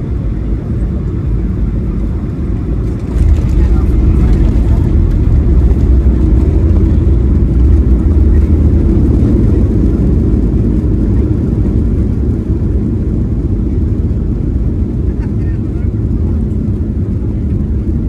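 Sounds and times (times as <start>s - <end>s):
airliner cabin engine rumble: 0.0s - 18.0s.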